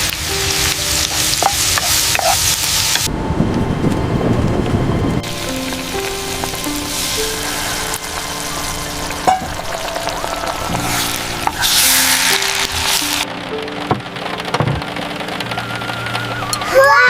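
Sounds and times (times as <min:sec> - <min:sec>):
food sizzling in a pan: 0:00.0 - 0:03.1, 0:05.2 - 0:13.3
slow melody of held notes: 0:00.0 - 0:17.0.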